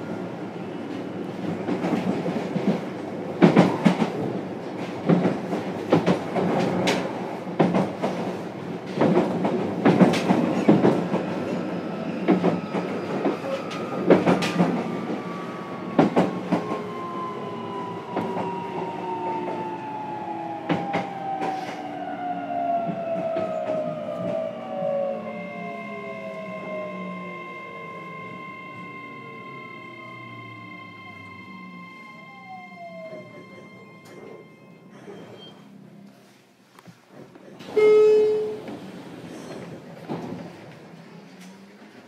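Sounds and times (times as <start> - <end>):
train wheels clacking over rail joints: 4.8 - 11.2.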